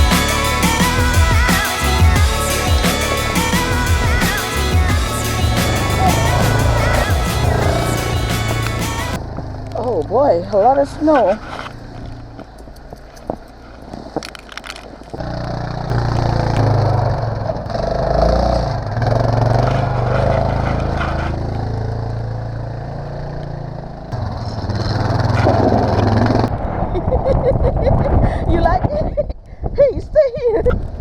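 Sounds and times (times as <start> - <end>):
atv engine running: 0.0 - 13.0, 15.2 - 26.5.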